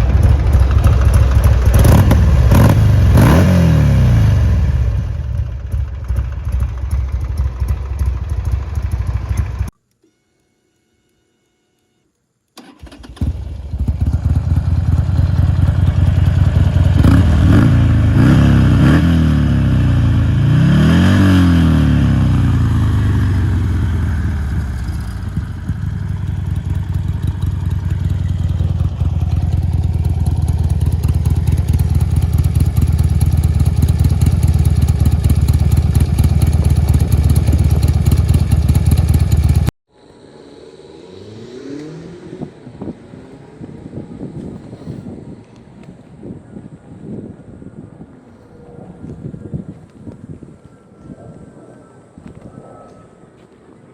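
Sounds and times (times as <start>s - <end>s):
motorcycle engine revving at idle: 0.0s - 9.7s, 13.2s - 45.2s.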